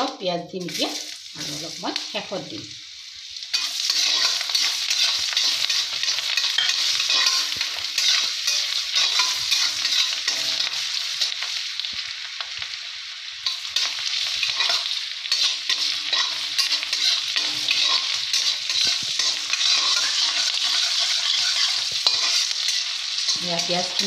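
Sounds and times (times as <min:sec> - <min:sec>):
onion sizzling in oil: 0:00.0 - 0:24.0
spatula scraping a pan: 0:03.5 - 0:11.4, 0:13.4 - 0:24.0.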